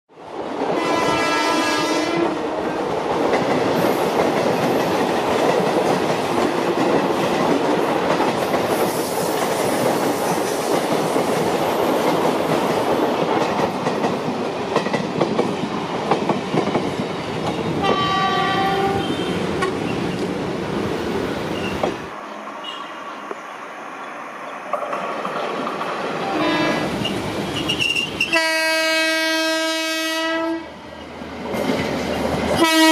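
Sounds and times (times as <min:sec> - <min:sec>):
train rumbling past: 0:00.2 - 0:32.9
train horn: 0:00.8 - 0:02.5, 0:17.8 - 0:19.5, 0:26.2 - 0:27.0, 0:28.3 - 0:30.8, 0:32.6 - 0:32.9.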